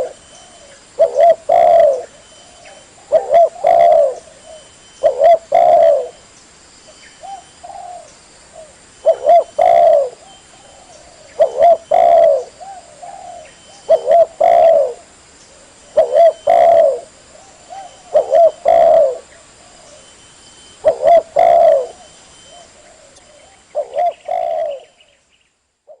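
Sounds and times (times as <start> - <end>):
dove cooing: 0.0 - 6.2, 7.2 - 20.1, 20.7 - 25.1.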